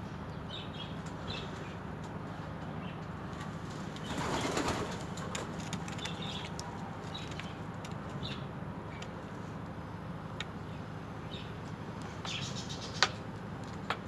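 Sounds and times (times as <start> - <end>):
birds chirping: 3.9 - 9.2, 10.6 - 13.3
wings fluttering: 4.0 - 7.6.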